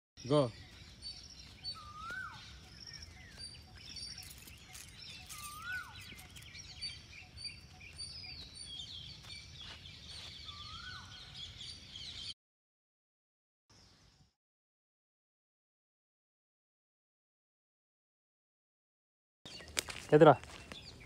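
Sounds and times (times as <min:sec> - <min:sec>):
high bird chirps and trills: 0:00.2 - 0:12.4
bird whistled rising falling call: 0:01.7 - 0:02.6.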